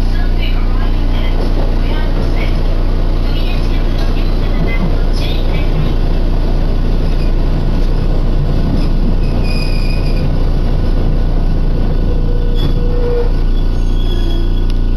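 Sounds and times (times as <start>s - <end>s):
wheels rumbling on rails: 0.0s - 14.9s
high wheel squeal: 7.0s - 10.5s, 12.0s - 14.9s.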